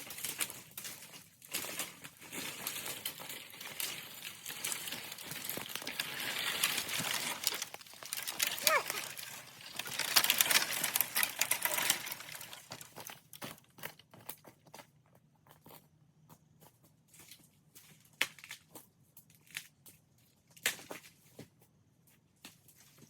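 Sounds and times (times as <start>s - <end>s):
twigs snapping: 0.0s - 13.1s
dry leaves rustling and crackling: 0.0s - 13.6s.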